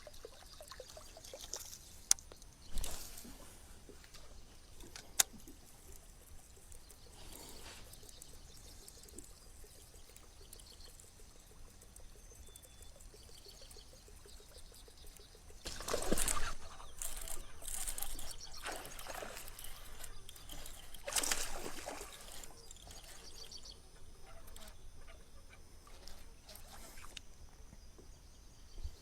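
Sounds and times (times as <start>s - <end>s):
water trickling and dripping: 0.0s - 2.7s, 3.9s - 23.6s
water splashing: 15.6s - 22.8s.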